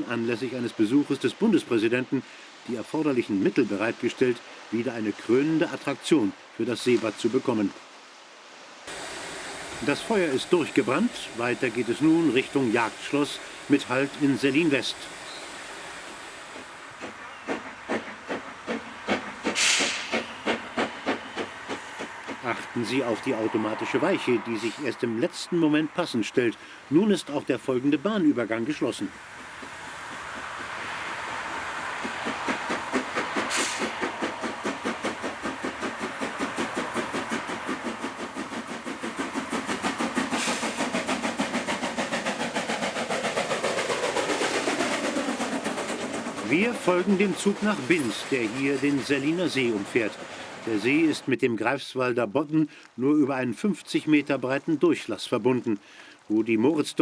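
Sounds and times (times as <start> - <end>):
hiss of released steam: 8.8 - 25.8, 30.9 - 51.3
steam locomotive chuffing: 8.9 - 25.8, 26.5 - 51.3.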